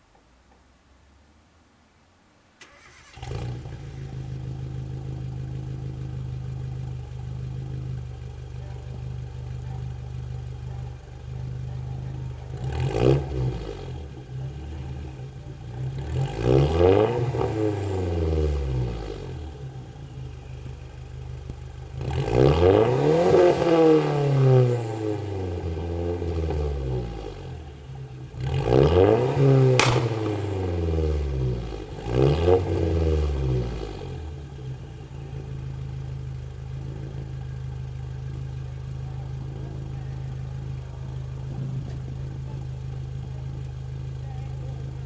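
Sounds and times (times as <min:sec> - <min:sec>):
car engine starting and idling: 0:02.6 - 0:45.0
engine revving: 0:15.9 - 0:19.5, 0:22.0 - 0:27.6, 0:28.2 - 0:34.3.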